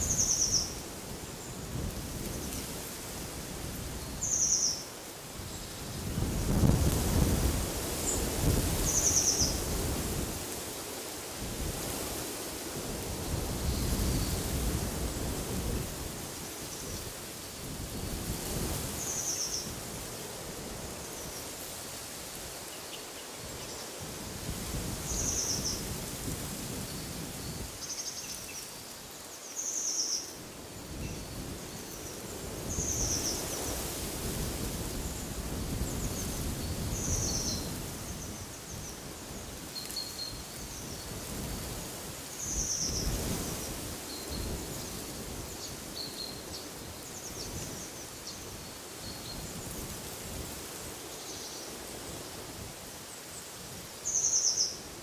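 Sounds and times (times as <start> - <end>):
wind gusting: 5.2 - 22.6.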